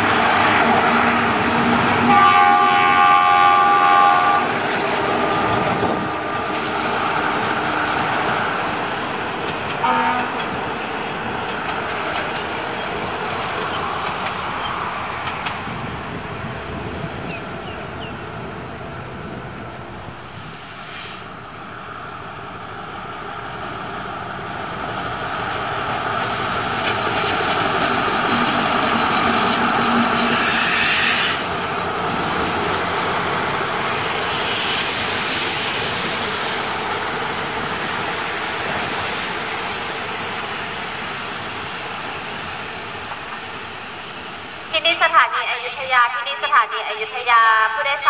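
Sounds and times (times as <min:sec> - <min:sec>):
diesel locomotive: 0:00.0 - 0:48.0
train coaches rumbling on rails: 0:00.0 - 0:48.0
hiss: 0:20.4 - 0:21.4, 0:30.3 - 0:31.5, 0:34.0 - 0:36.7.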